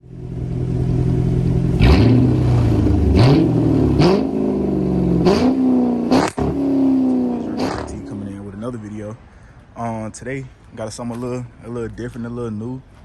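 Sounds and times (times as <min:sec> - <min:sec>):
car engine idling and revving: 0:00.0 - 0:08.4.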